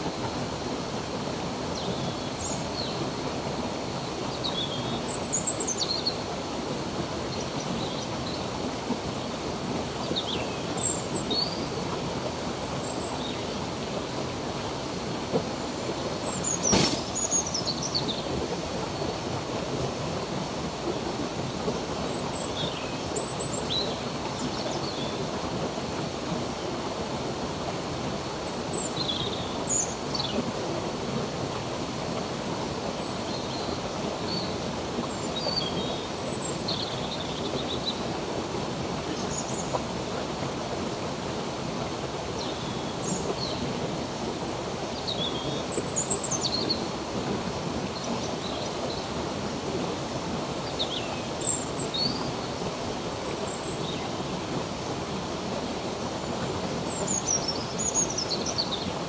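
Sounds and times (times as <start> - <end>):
running water flowing: 13.6 - 22.0.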